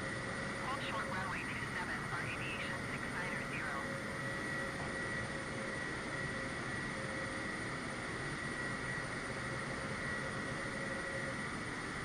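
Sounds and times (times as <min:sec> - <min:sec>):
high engine whine: 0:00.5 - 0:04.8
jet engines running: 0:00.5 - 0:04.8.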